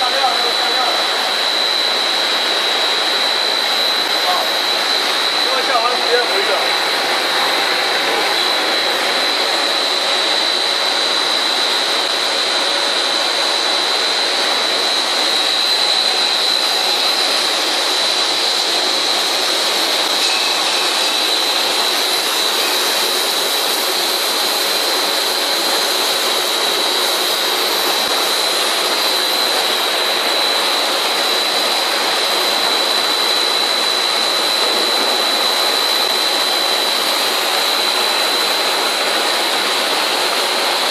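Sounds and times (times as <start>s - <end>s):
high-pitched machine whine: 0.0s - 40.9s
loud machine noise: 0.0s - 40.9s.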